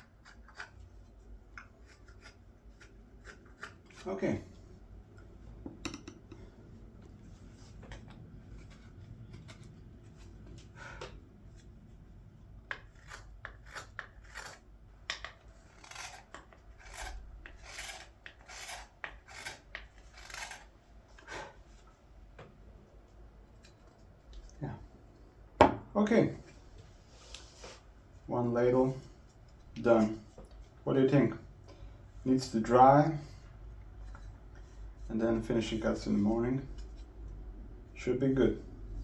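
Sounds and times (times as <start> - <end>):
knife shaving green wood: 0.0 - 4.6, 12.6 - 21.6.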